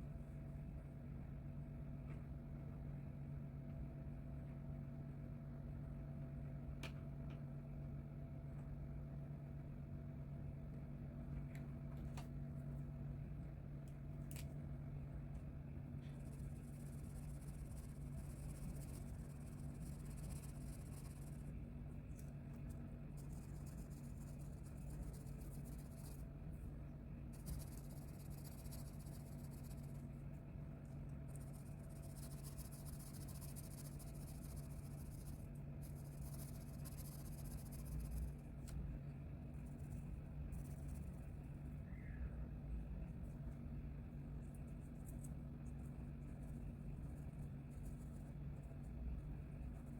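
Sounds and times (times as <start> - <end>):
steady low hum: 0.0 - 49.9
colouring tool scratching on paper: 16.2 - 21.4, 27.4 - 30.0, 31.3 - 38.2.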